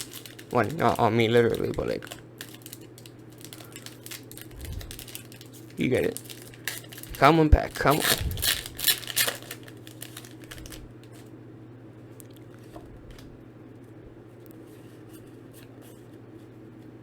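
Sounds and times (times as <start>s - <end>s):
foil pack crinkling and tearing: 0.0s - 11.2s
rustles and ticks of handling: 0.0s - 11.3s
low hum: 3.4s - 15.4s.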